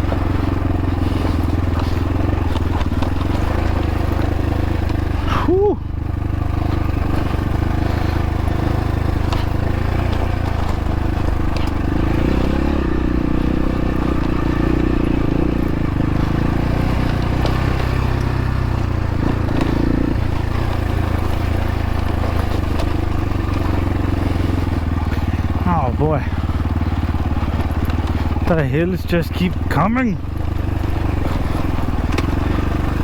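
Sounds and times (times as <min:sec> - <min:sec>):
dirt bike engine running: 0:00.0 - 0:33.0
sharp knocks and clatter: 0:30.5 - 0:33.0.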